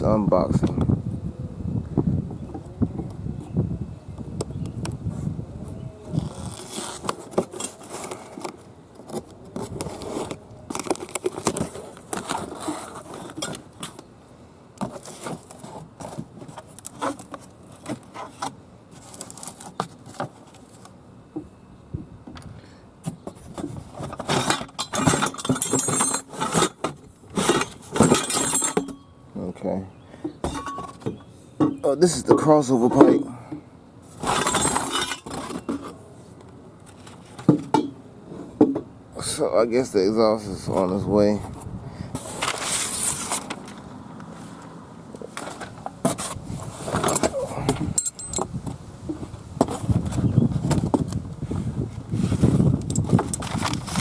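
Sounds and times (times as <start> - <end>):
cardboard and packing rustling: 6.2 - 14.1, 14.8 - 21.0, 23.0 - 28.6, 41.3 - 44.6, 45.2 - 54.0
light metallic clinks: 47.9 - 48.4.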